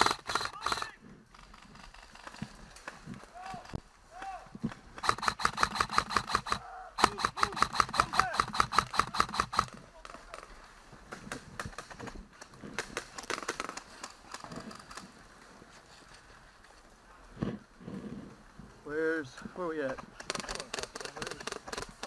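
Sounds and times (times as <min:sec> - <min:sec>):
airsoft gun firing rapid shots: 0:00.0 - 0:01.0, 0:05.0 - 0:09.8, 0:20.2 - 0:22.0.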